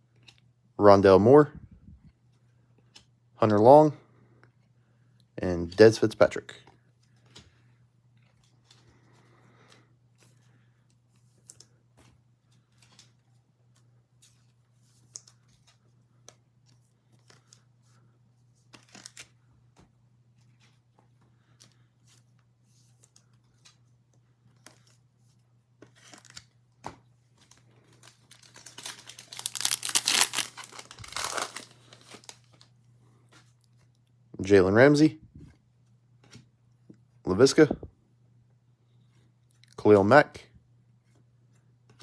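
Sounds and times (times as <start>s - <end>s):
faint electrical hum: 0.0s - 42.0s
card handling clicks and rustles: 6.6s - 33.9s
wrapper tearing and crinkling: 27.9s - 32.6s.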